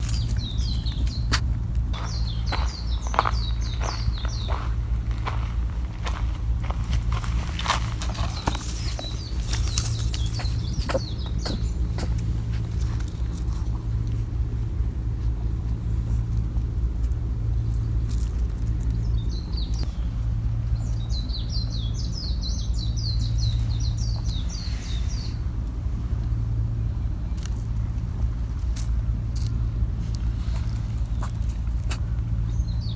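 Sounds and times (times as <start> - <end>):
small bird chirping trills: 0.0 - 5.0, 7.6 - 12.8, 17.5 - 25.5, 32.2 - 32.9
steady low rumble: 0.0 - 32.9.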